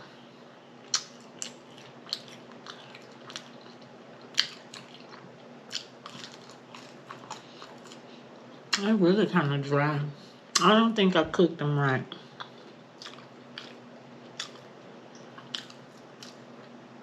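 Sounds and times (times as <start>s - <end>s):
close chewing: 0.9s - 8.2s, 12.4s - 16.8s.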